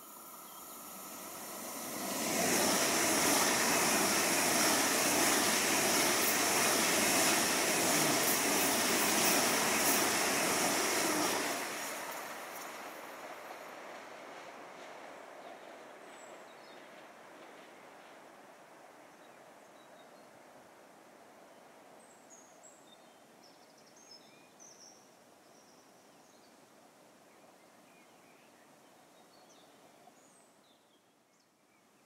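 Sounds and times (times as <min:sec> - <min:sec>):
train passing at speed: 0:00.0 - 0:19.6.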